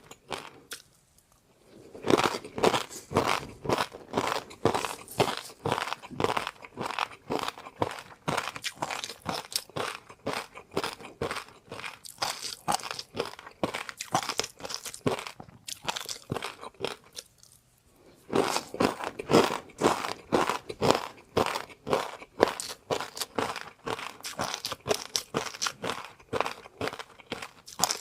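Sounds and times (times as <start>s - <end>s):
crunchy food chewing: 0.0s - 28.0s.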